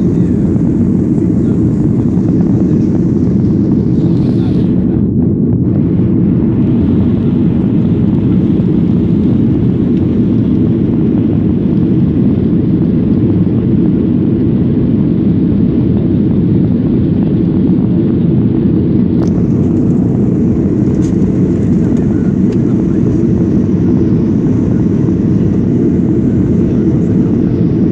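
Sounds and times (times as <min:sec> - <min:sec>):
airliner cabin engine rumble: 0:00.0 - 0:27.9.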